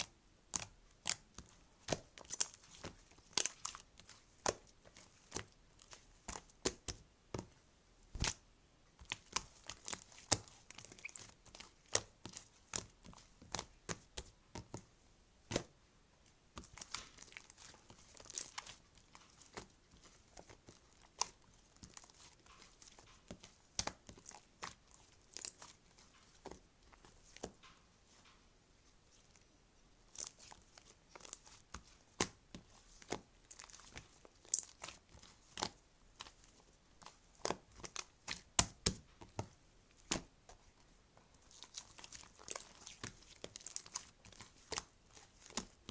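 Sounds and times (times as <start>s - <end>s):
crinkling and rustling: 16.5s - 45.9s.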